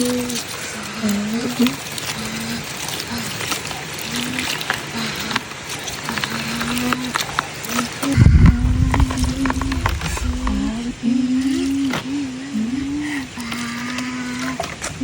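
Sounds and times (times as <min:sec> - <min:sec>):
low rumble: 0:08.1 - 0:11.2.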